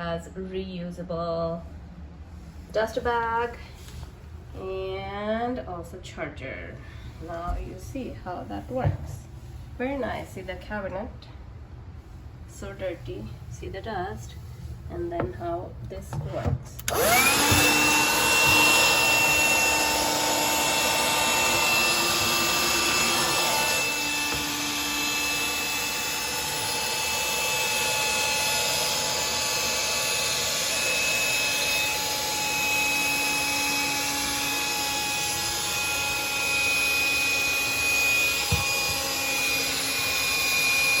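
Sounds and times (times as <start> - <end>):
handheld vacuum cleaner running: 16.8 - 41.0.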